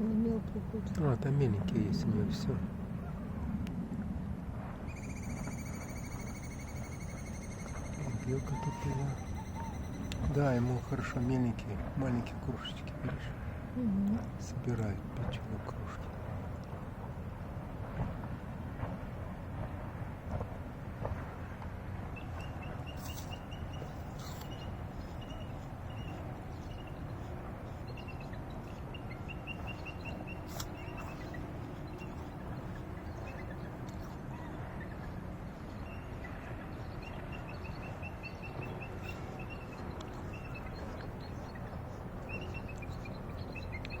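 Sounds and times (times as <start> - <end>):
low outdoor rumble: 0.0 - 44.0.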